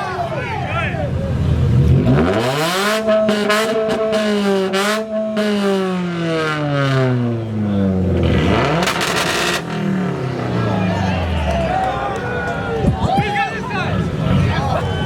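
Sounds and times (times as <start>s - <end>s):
car engine revving loudly: 1.5s - 11.8s
exhaust crackles: 7.1s - 15.0s.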